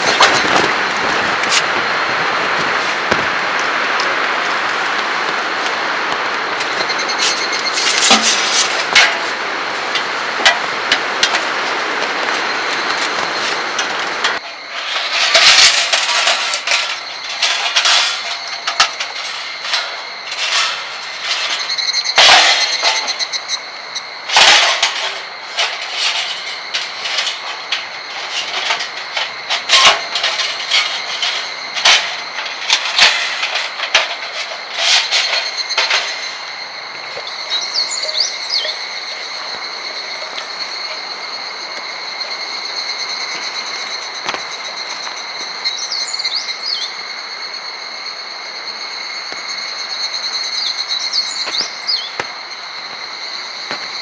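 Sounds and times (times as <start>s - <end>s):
strong wind blowing: 0.0s - 14.4s
knocks and rattles: 0.0s - 23.5s, 24.3s - 45.6s.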